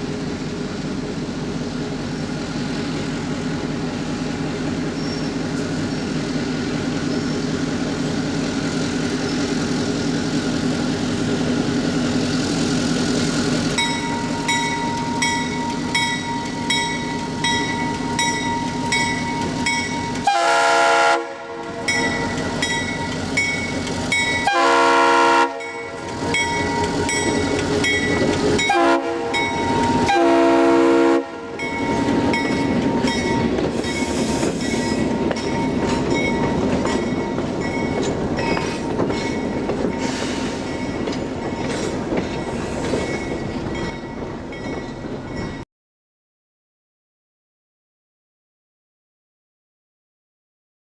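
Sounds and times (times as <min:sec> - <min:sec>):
train rumble: 0:00.0 - 0:45.6
locomotive horn: 0:20.2 - 0:21.9, 0:24.4 - 0:27.1, 0:28.6 - 0:31.6
bell ringing: 0:25.6 - 0:30.0, 0:31.6 - 0:45.6.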